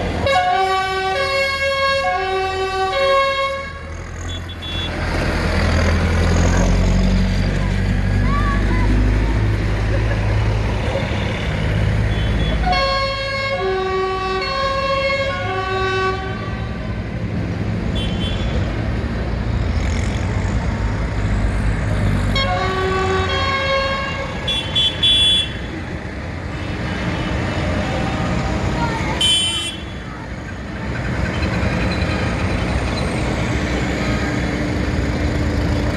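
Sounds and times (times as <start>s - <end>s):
tractor engines rumbling: 0.0s - 35.9s
musical vehicle horn tune: 0.2s - 5.0s, 12.1s - 16.9s, 22.4s - 25.6s.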